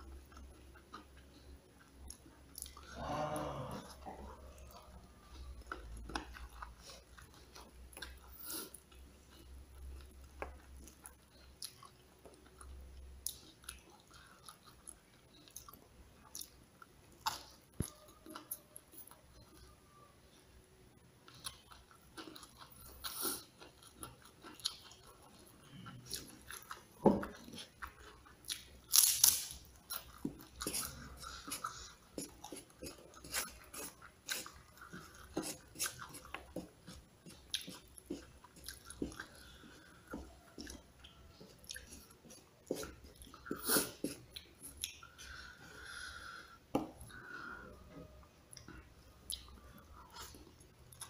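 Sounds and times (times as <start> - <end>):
person chewing crispy food: 0.0 - 20.1, 21.2 - 51.0.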